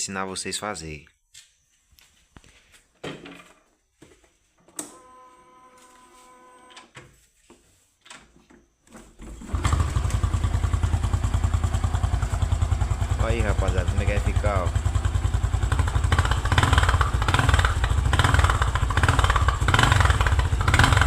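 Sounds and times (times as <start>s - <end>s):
motorcycle engine idling: 9.5s - 21.0s.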